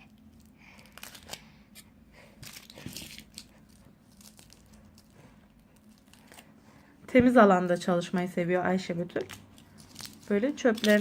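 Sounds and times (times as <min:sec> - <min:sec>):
foil wrapper crinkling: 0:00.1 - 0:01.5, 0:02.4 - 0:06.6, 0:09.1 - 0:11.0.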